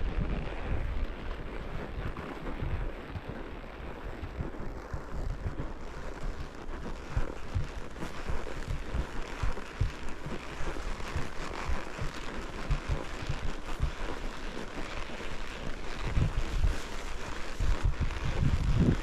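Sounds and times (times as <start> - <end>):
wind buffeting microphone: 0.0 - 19.0
horse hoof thumps: 4.9 - 19.0.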